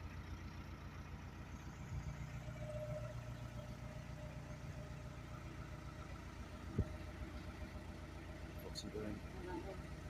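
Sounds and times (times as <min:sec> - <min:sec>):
diesel engine low pulsing drone: 0:00.0 - 0:10.0.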